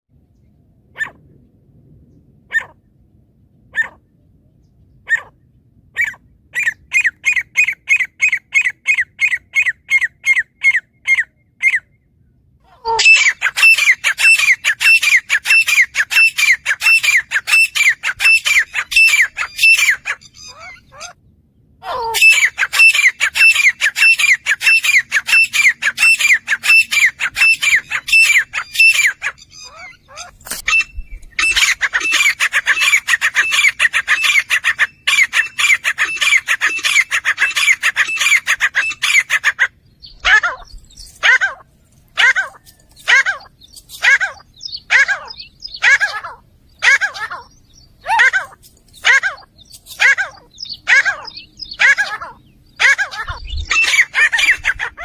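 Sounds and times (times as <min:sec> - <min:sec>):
francolin calling: 0:12.8 - 0:21.2, 0:21.9 - 0:41.5.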